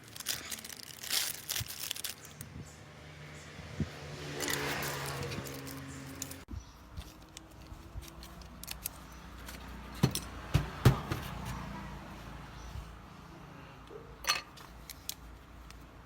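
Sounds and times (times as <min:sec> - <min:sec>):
small parts and tools clicking: 0:04.4 - 0:10.4, 0:14.2 - 0:15.9
louder knocks: 0:10.0 - 0:11.6.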